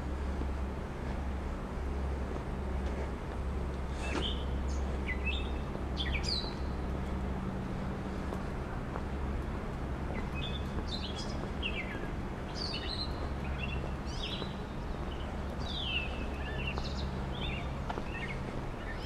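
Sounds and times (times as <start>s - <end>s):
steady low hum: 0.0s - 19.0s
small birds chirping: 3.9s - 7.2s, 10.0s - 19.0s.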